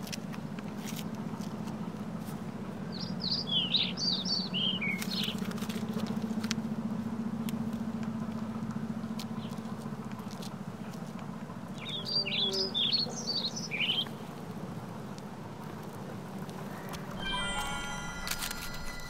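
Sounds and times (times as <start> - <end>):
songbird chirping: 2.9 - 5.4, 11.8 - 14.3.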